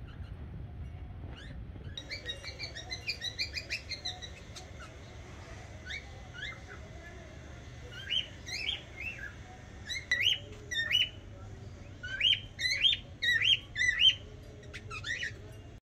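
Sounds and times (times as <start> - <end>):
small bird chirping: 0.0 - 15.7.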